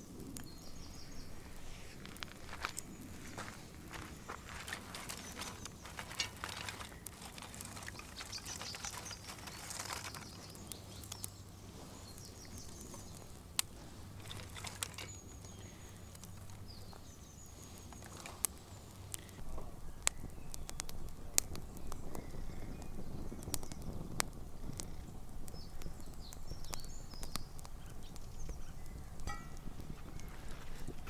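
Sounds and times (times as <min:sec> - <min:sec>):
small birds chirping and trilling: 0:00.0 - 0:31.0
rustling: 0:01.3 - 0:19.4.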